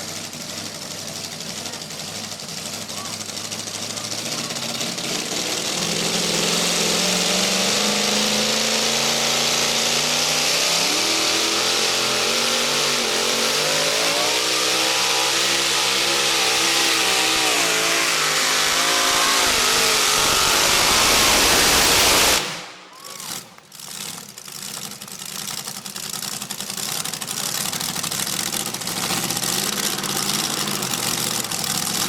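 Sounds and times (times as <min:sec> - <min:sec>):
truck engine at high revs: 0:00.0 - 0:32.0
heavy rushing noise: 0:04.2 - 0:23.6.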